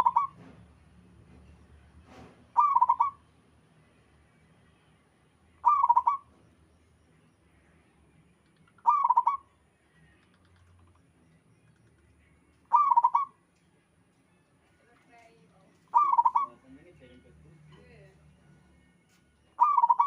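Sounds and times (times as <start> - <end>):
dove cooing: 0.0 - 0.4, 2.6 - 3.2, 5.6 - 6.3, 8.8 - 9.5, 12.7 - 13.4, 15.9 - 16.6, 19.6 - 20.0.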